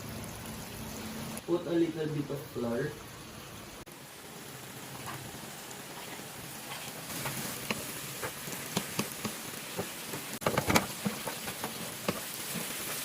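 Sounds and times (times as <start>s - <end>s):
food sizzling in oil: 0.0s - 13.0s
oil pops and crackles: 6.9s - 13.0s.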